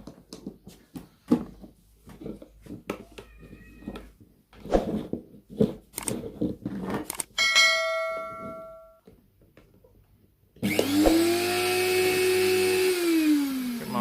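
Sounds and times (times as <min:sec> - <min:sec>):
sharp metallic clang: 0:07.4 - 0:09.0
blender motor whining: 0:10.6 - 0:14.0.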